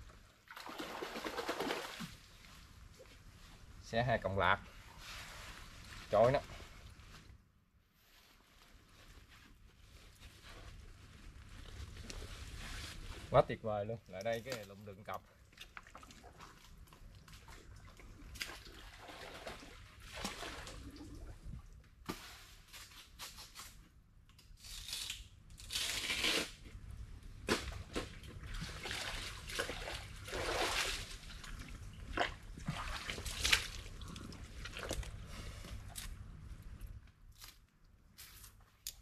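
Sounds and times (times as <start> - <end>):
wet sloshing in mud: 27.6 - 35.2.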